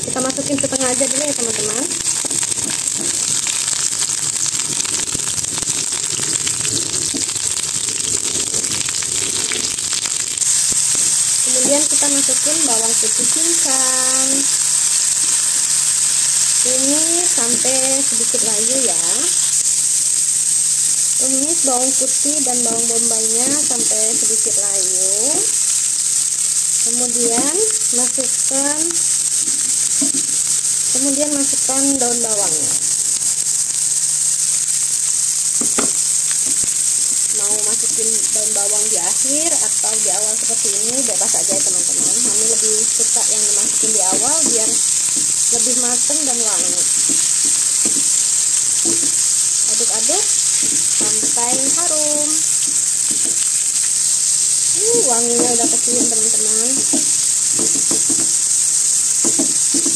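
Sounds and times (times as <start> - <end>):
onion sizzling in oil: 0.0 - 59.9.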